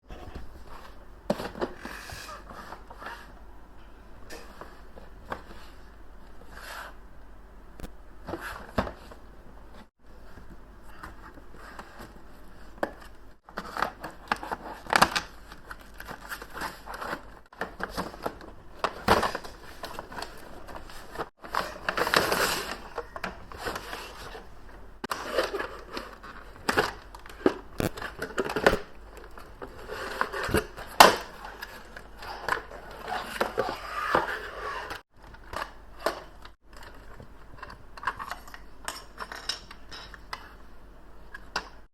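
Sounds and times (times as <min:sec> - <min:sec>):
paper and plastic crinkling: 0:13.5 - 0:38.6.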